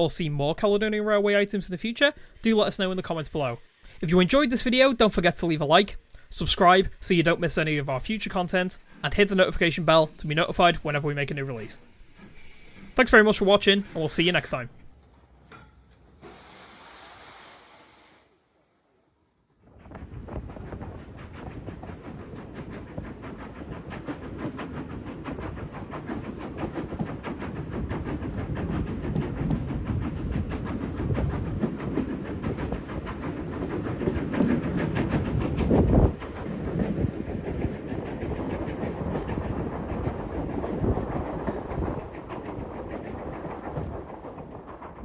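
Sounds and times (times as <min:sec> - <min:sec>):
steam hissing: 0:01.8 - 0:45.0
steam train rhythmic beat: 0:20.0 - 0:45.0.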